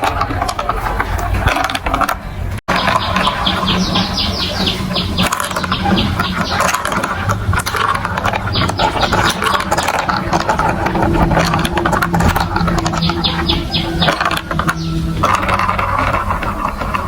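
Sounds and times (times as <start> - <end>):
steady low hum: 2.7 - 17.0
marbles rattling on plastic tracks: 6.5 - 13.0, 14.1 - 17.0.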